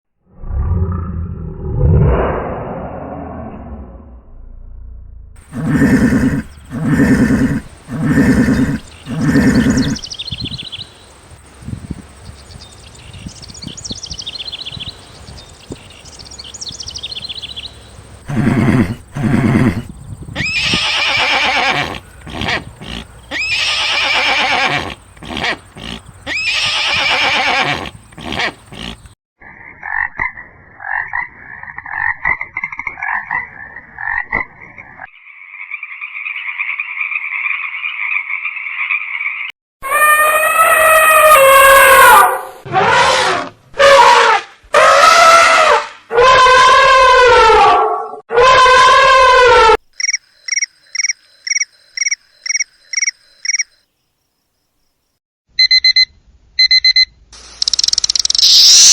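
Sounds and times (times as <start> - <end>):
horses neighing: 5.4 - 10.6, 18.2 - 29.2
animal calls: 5.4 - 11.0, 18.2 - 30.0, 36.4 - 49.8.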